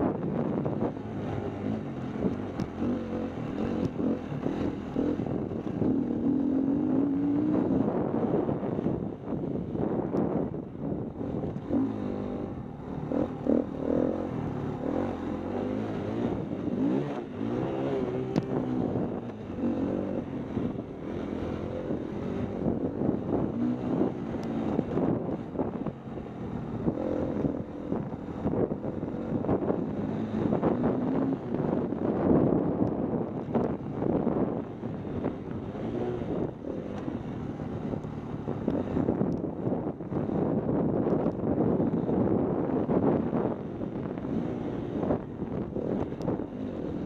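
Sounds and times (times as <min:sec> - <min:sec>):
wind buffeting microphone: 0:00.0 - 0:47.0
dirt bike engine revving: 0:11.6 - 0:25.5.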